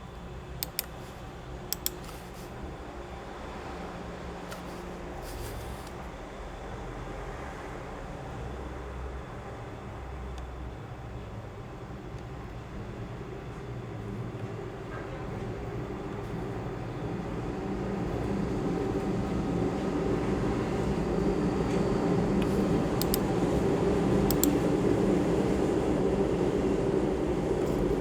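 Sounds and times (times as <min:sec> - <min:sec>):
sharp clicks: 0:00.6 - 0:01.0, 0:01.7 - 0:02.2, 0:23.0 - 0:23.3, 0:24.3 - 0:24.6.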